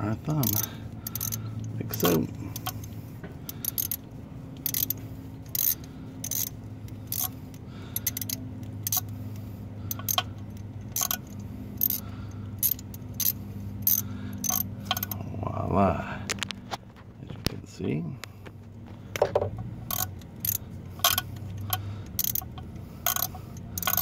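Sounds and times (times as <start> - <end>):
steady low hum: 0.0 - 24.0
ratchet clicking: 0.3 - 15.2, 19.8 - 24.0.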